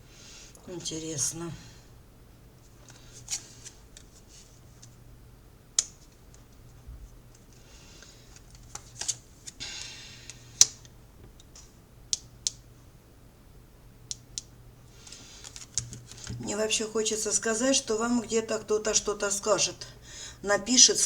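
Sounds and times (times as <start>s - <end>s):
cards rustling: 2.7s - 4.9s, 7.3s - 9.9s, 15.0s - 16.4s
cards tapping and clicking: 15.1s - 16.4s.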